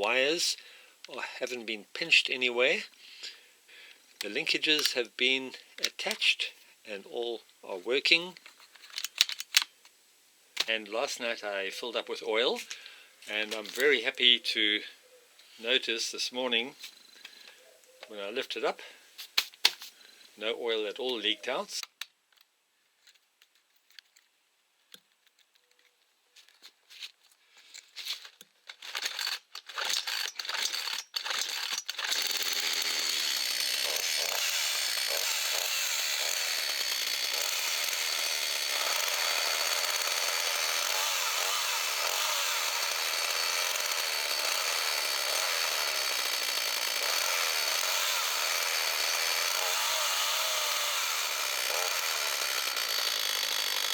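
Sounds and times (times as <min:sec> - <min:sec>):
chainsaw running: 0:28.9 - 0:53.9.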